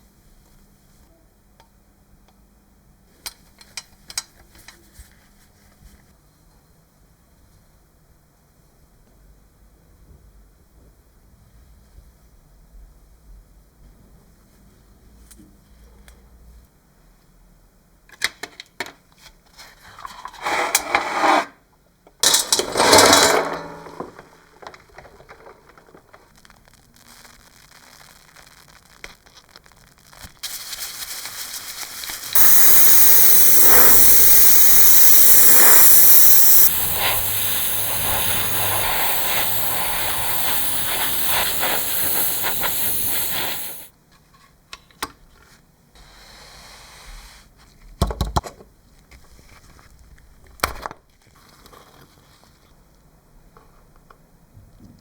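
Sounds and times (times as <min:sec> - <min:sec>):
bursts of working noise: 0:22.3 - 0:26.0, 0:32.4 - 0:43.9
spray or air jet hissing: 0:32.3 - 0:43.9.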